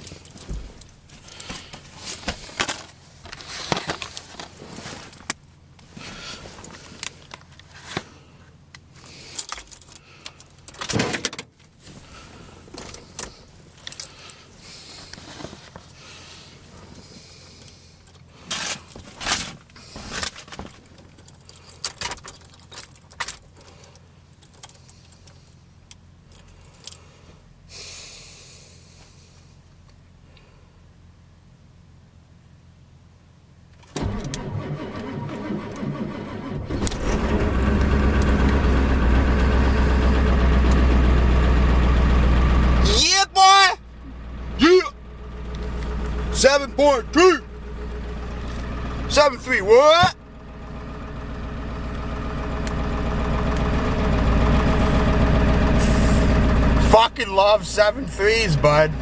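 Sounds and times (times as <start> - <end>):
clicking and rustling handling noise: 0.0 - 12.1, 12.7 - 16.0, 16.8 - 27.0
keys jangling: 9.3 - 10.9, 20.8 - 25.6.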